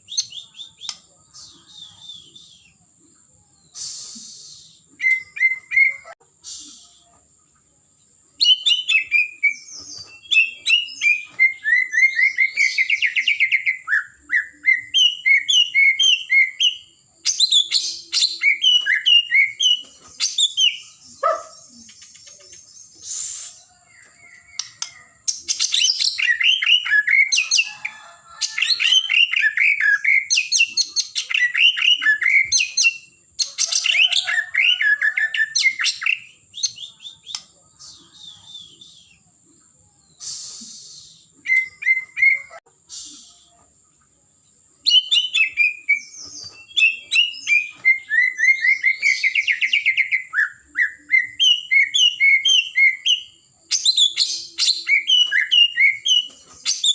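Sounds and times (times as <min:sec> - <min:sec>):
bird singing whistles and chatter: 0:00.0 - 0:02.9, 0:03.6 - 0:07.2, 0:08.4 - 0:39.3, 0:40.0 - 0:43.7, 0:44.8 - 0:56.9.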